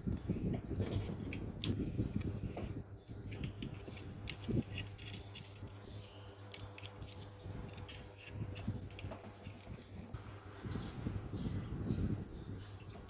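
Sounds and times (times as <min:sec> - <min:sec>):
steady low hum: 0:00.0 - 0:13.0
small parts clicking and tapping: 0:00.1 - 0:10.1.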